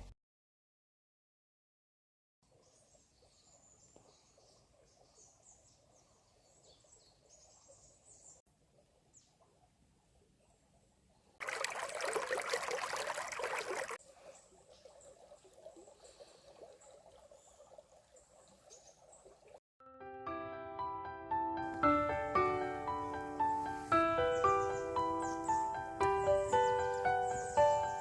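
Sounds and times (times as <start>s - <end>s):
small birds chirping: 2.5s - 8.4s, 15.8s - 19.6s, 23.0s - 28.0s.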